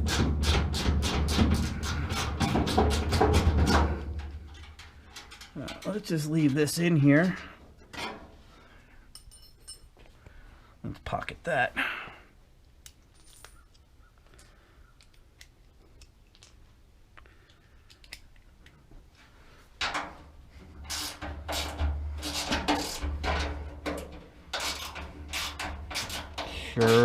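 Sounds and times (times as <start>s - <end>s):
small metal clicks: 4.1s - 8.2s, 17.2s - 18.8s
ratchet wrench clicking: 20.9s - 23.0s, 24.5s - 27.0s.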